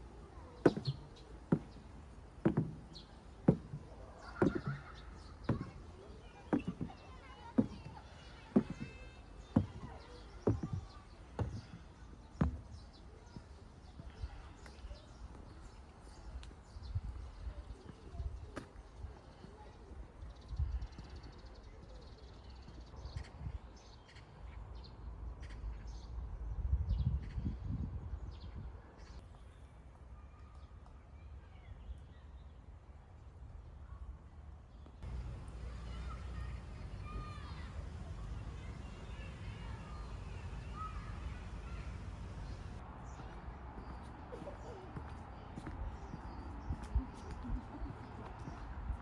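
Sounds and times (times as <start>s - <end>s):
birds chirping: 0.0s - 24.6s, 34.7s - 49.0s.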